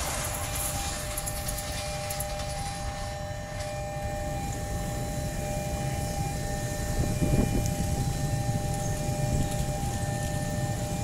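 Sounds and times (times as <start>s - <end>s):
train coaches rumbling on track: 0.0s - 11.0s.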